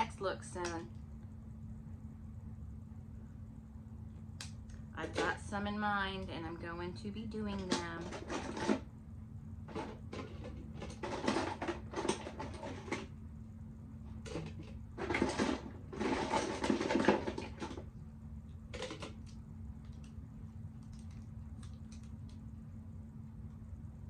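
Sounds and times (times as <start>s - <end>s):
steady low hum: 0.0s - 24.0s
plastic items clicking and rattling: 7.7s - 8.8s, 9.7s - 13.1s, 14.2s - 17.9s, 18.7s - 19.3s.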